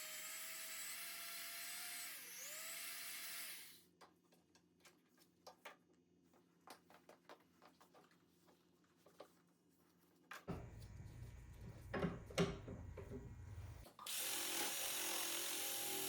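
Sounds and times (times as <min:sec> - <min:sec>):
electric power tool running: 0:00.0 - 0:03.8, 0:12.8 - 0:16.0.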